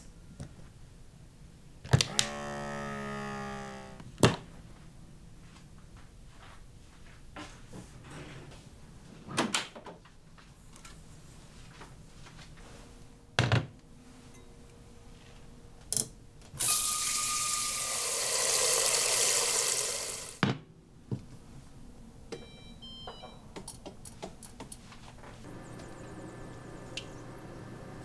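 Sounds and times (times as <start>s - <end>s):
kitchen tap running into sink: 16.6s - 20.4s.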